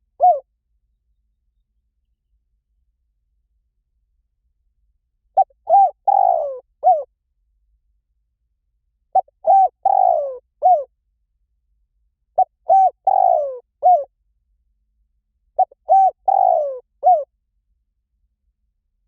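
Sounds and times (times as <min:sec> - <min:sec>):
dove cooing: 0:00.0 - 0:00.4, 0:05.4 - 0:07.1, 0:09.2 - 0:10.9, 0:12.4 - 0:14.1, 0:15.6 - 0:17.3.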